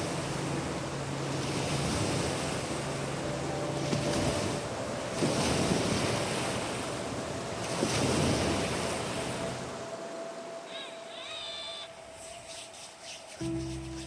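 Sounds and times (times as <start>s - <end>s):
wind buffeting microphone: 0.0s - 10.6s
rushing splashing water: 0.0s - 10.7s.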